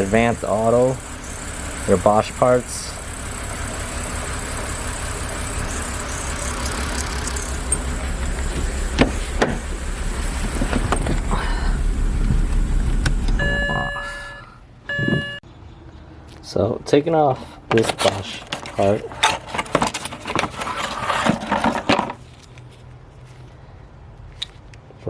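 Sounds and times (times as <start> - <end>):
car engine idling roughly: 0.0 - 13.4
electronic chime: 13.4 - 15.4.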